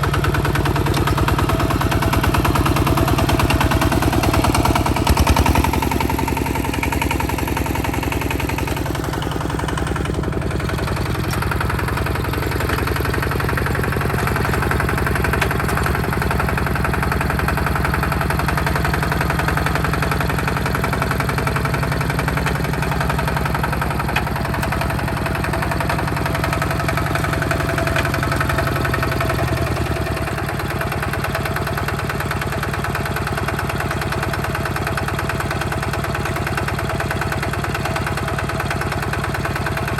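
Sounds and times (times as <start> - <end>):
tractor diesel engine chugging: 0.0 - 39.9.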